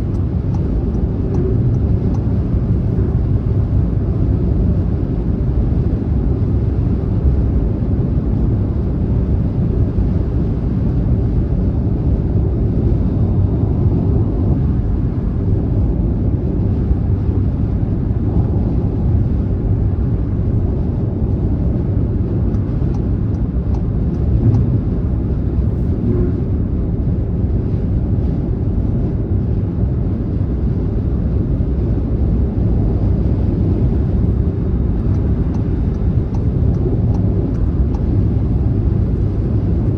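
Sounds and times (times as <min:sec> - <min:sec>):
car engine drone: 0:00.0 - 0:39.9
tyre and road noise: 0:13.1 - 0:27.4.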